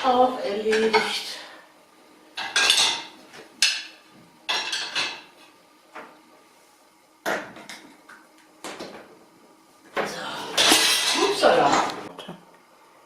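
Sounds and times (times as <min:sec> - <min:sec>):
dishes clinking and knocking: 0:02.4 - 0:03.9, 0:04.5 - 0:05.3, 0:10.6 - 0:11.9.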